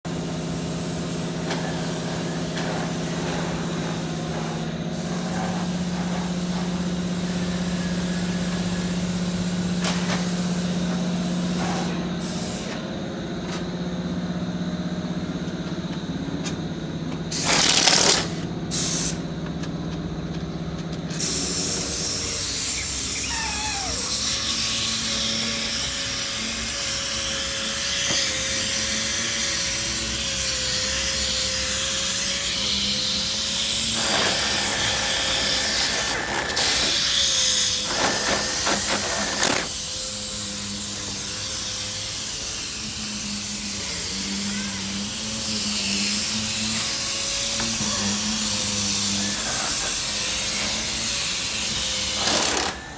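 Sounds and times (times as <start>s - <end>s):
power tool whirring: 17.3s - 19.2s, 21.1s - 52.9s
loud hissing blasts: 21.2s - 26.4s, 33.8s - 39.4s.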